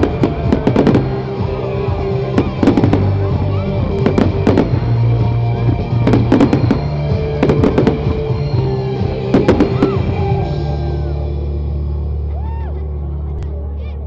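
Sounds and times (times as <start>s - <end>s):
fireworks bangs and crackles: 0.0s - 10.5s
loud music: 0.0s - 13.3s.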